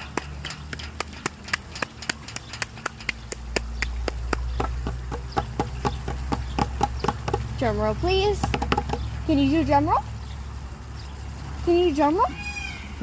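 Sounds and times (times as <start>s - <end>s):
parrot making rapid sharp clicks: 0.0s - 7.5s.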